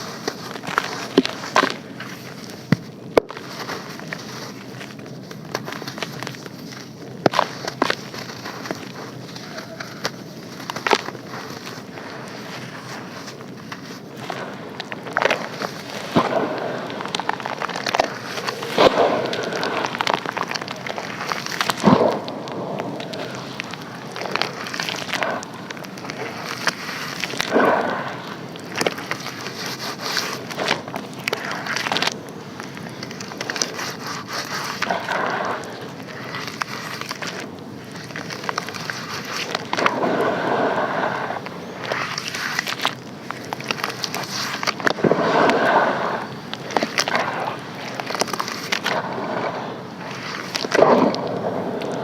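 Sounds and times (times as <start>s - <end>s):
sand and charcoal chunks crumbling: 0.0s - 40.5s.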